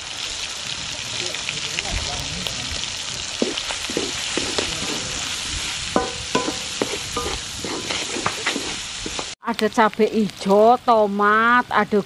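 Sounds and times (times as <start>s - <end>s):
food sizzling in hot oil: 0.0s - 9.4s
spatula scraping a wok: 3.4s - 9.4s
spatula knocking on a ringing wok: 6.0s - 8.4s.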